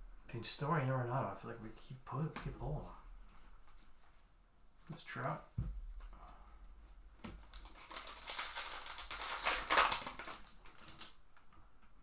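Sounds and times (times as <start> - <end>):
foil wrapper crinkling: 7.4 - 11.5.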